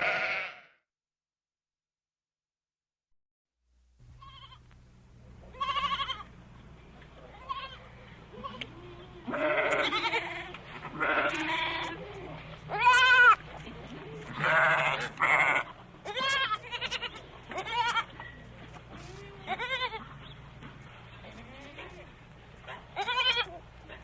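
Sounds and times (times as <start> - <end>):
goats or sheep bleating: 0.0 - 0.8, 5.5 - 6.3, 7.2 - 13.6, 14.2 - 18.2, 19.0 - 20.1, 23.0 - 23.7.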